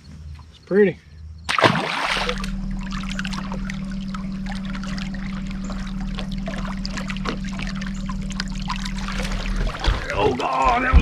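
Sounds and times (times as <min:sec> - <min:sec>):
boat low hum: 0:00.0 - 0:11.0
water trickling and dripping: 0:01.9 - 0:10.1.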